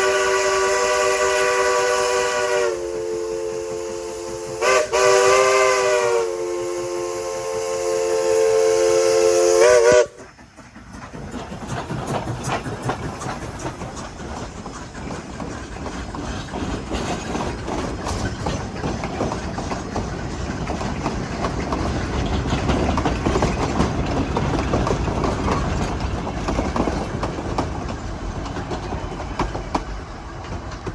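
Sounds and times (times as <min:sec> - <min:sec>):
steam locomotive chime whistle: 0:00.0 - 0:10.3
train rumbling with rail clatter: 0:00.0 - 0:30.9.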